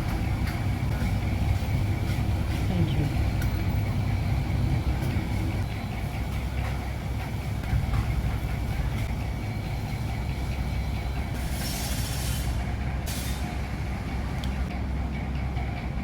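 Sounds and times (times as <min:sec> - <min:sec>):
low rumble of traffic: 0:00.0 - 0:16.0
sharp hiss of air: 0:11.4 - 0:13.6.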